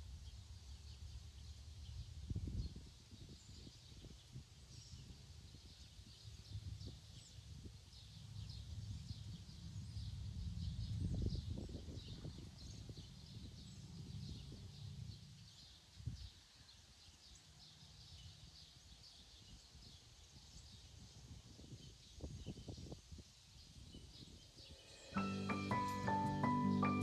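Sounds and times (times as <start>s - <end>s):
birds chirping: 24.0s - 27.0s.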